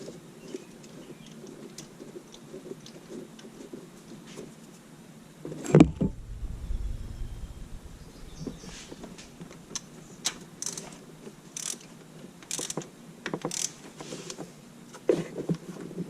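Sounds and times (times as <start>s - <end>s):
ratchet wrench clicking: 10.6s - 10.9s, 11.6s - 11.9s, 12.5s - 12.8s, 13.5s - 13.8s.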